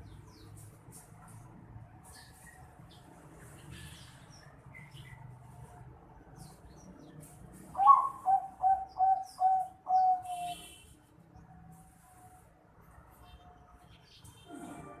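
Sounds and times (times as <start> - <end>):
dove cooing: 7.8 - 10.6.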